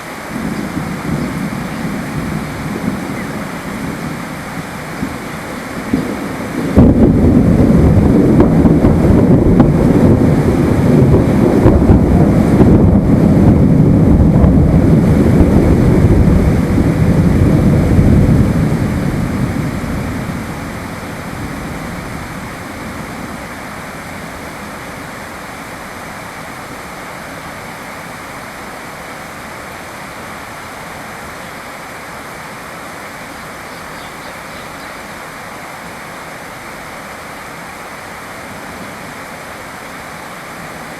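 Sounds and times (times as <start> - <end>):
steady rain: 0.0 - 40.9
thunder rolling: 0.3 - 23.7.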